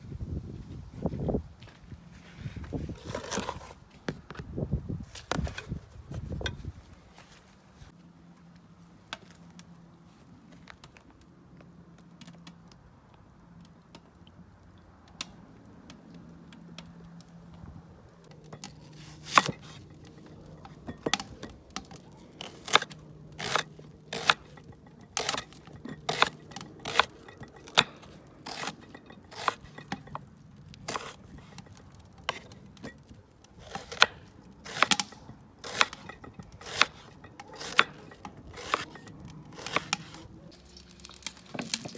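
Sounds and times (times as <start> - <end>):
knife cutting food: 18.5 - 30.3, 30.9 - 32.6, 33.6 - 41.9.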